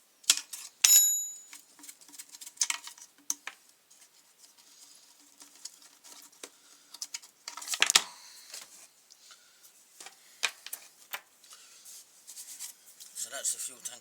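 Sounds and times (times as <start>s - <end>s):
plastic parts and tools clicking: 1.5s - 3.6s.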